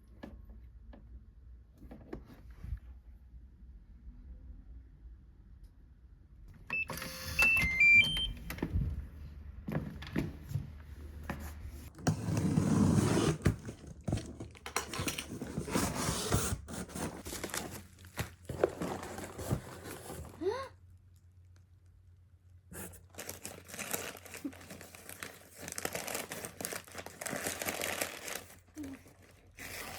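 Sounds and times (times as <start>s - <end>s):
short electronic beeps: 6.7s - 8.4s.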